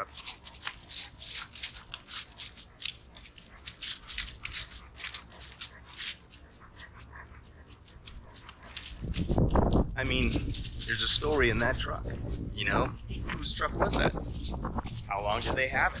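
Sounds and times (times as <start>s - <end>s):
crackling and crunching clicks: 0.0s - 16.0s
wind rumbling on microphone: 7.1s - 16.0s.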